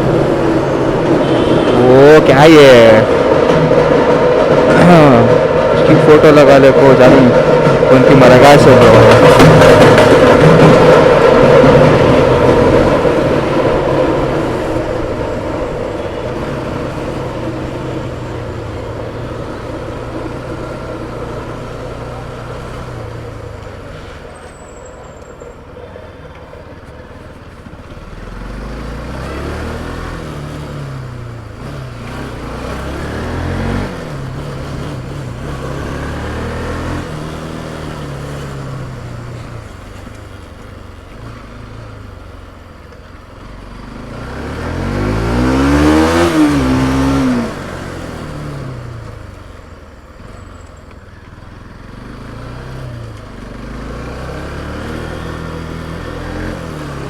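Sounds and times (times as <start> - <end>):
motorcycle engine running: 0.0 - 24.3
road and wind noise: 0.0 - 57.0.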